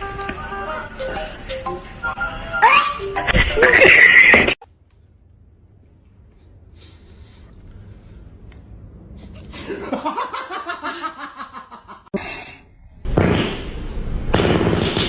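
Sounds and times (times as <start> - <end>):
person laughing: 2.6 - 4.6, 9.6 - 12.1.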